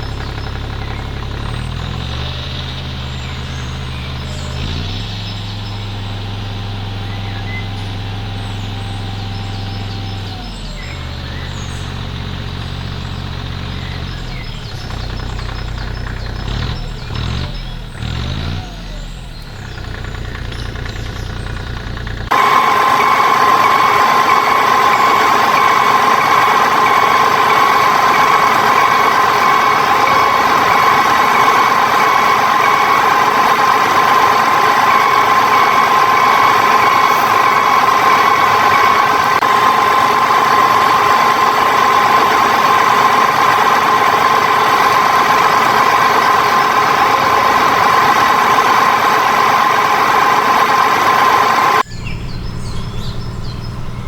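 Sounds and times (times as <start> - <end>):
motor high whine: 20.5 - 54.0.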